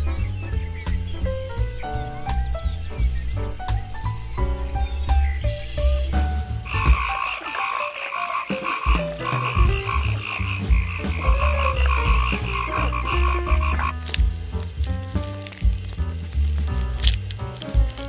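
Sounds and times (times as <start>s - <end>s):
soft background music: 0.0s - 18.0s
frogs calling in chorus: 6.7s - 14.0s.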